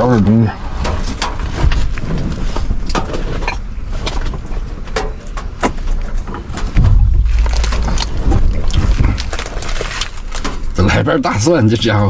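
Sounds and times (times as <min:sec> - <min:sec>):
plastic packaging rustling: 0:06.9 - 0:10.8.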